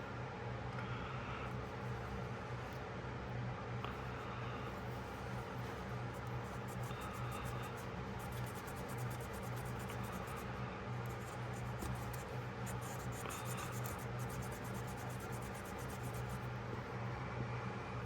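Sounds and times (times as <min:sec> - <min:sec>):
scrubbing a pocketknife: 0:05.5 - 0:10.5, 0:11.1 - 0:16.4.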